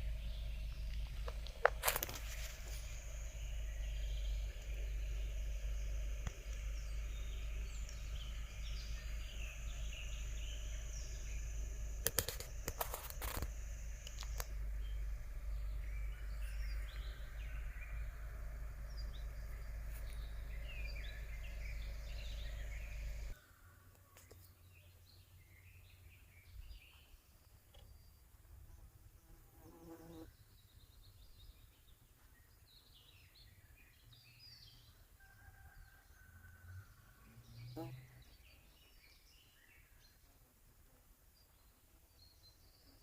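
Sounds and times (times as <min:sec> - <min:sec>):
low buzz: 0:00.0 - 0:23.4
low steady rumble: 0:00.0 - 0:23.4
songbirds singing and chirping: 0:00.0 - 0:40.4, 0:41.3 - 0:43.0.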